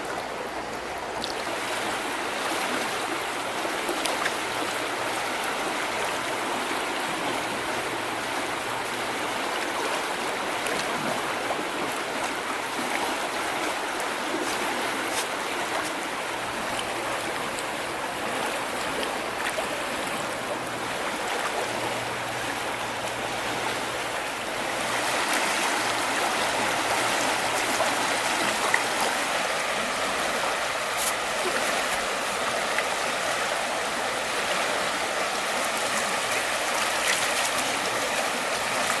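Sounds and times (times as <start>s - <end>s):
river water rushing and splashing: 0.0s - 39.0s.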